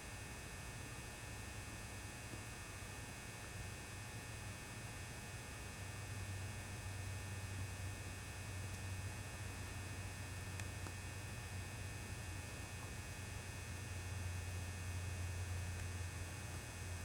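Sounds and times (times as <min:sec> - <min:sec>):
lamp ballast humming: 0:08.6 - 0:17.0.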